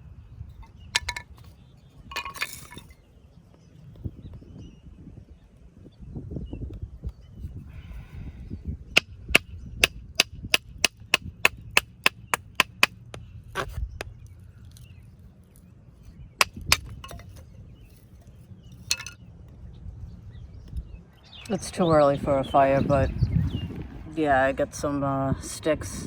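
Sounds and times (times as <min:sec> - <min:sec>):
wooden sticks cracking: 0:01.0 - 0:01.5, 0:10.5 - 0:12.9, 0:16.4 - 0:17.4, 0:18.9 - 0:19.2.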